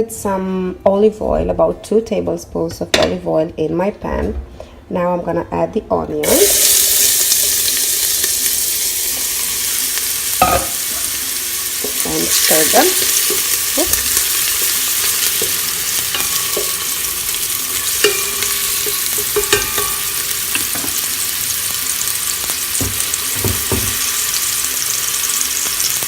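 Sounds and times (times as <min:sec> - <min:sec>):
onions sizzling in oil: 0:06.2 - 0:26.0
spoon knocking against pan: 0:10.4 - 0:10.8, 0:17.9 - 0:21.0, 0:22.8 - 0:24.1.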